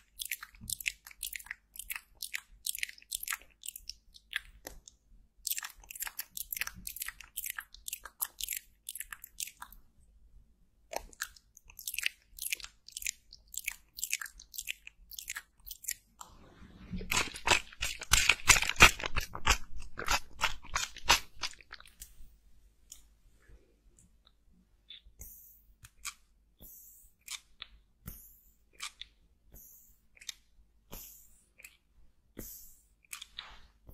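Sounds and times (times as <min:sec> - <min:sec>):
crisp crackling and crunching ticks: 0:00.0 - 0:04.8, 0:17.1 - 0:22.0.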